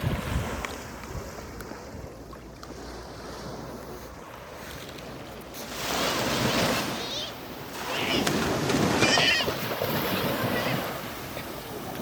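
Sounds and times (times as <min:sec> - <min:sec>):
wind rumbling on microphone: 0:00.0 - 0:05.3
sea waves washing in: 0:00.0 - 0:12.0.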